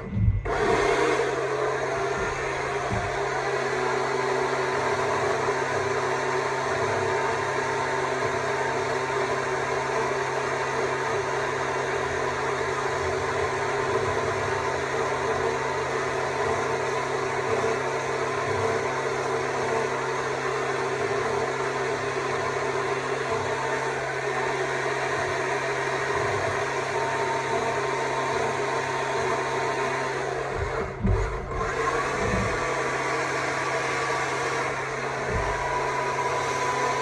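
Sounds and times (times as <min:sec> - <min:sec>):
chainsaw cutting wood: 0:30.3 - 0:37.0.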